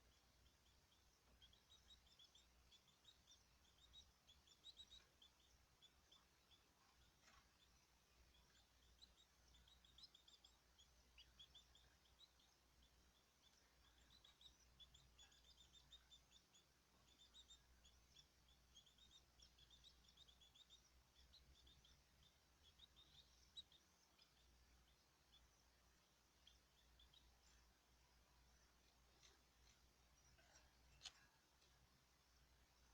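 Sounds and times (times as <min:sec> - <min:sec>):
small birds chirping faintly: 0:00.0 - 0:32.9.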